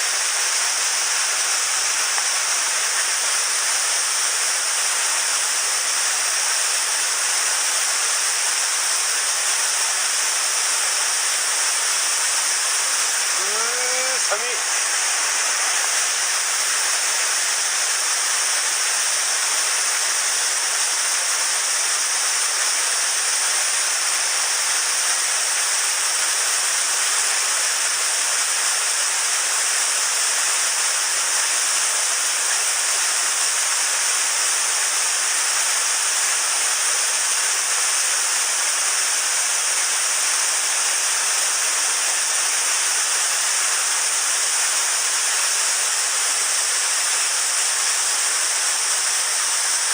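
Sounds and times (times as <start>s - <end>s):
fast mountain stream rushing: 0.0s - 49.9s.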